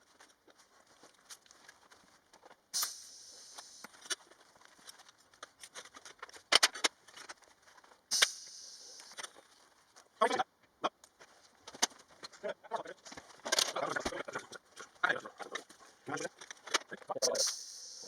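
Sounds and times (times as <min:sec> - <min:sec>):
short hissing bursts: 0:02.8 - 0:04.0, 0:08.1 - 0:09.3, 0:17.2 - 0:18.0.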